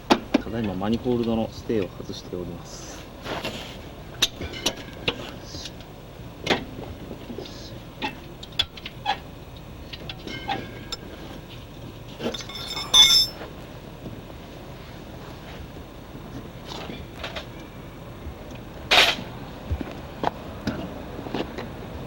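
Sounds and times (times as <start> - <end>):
hand tools clinking on metal: 12.2 - 13.5
ringing metallic clink: 12.4 - 13.4.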